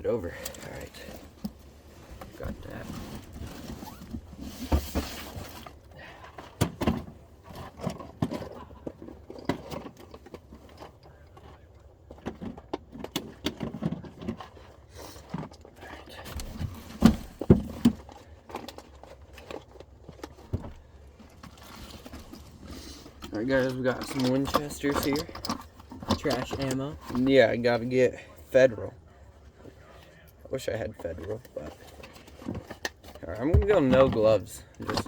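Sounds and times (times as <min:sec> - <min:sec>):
gear clicks and knocks: 0:00.3 - 0:27.8, 0:31.0 - 0:35.0
rustling: 0:00.4 - 0:06.6.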